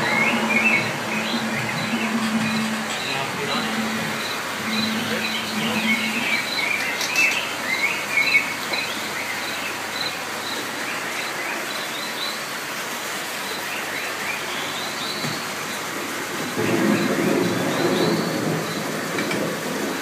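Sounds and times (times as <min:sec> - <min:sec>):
birds chirping: 0:00.0 - 0:12.6
hiss of falling water: 0:07.9 - 0:20.0.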